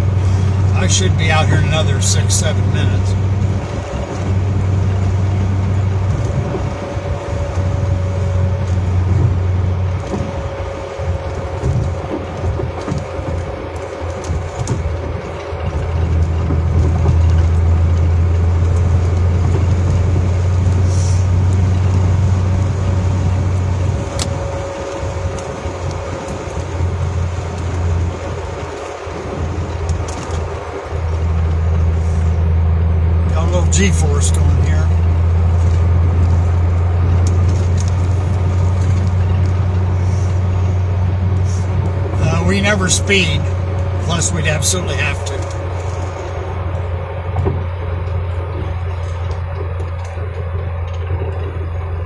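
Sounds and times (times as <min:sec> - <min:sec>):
faint steady whine: 0:00.0 - 0:06.2, 0:33.3 - 0:49.1
car road and engine drone: 0:00.0 - 0:52.0.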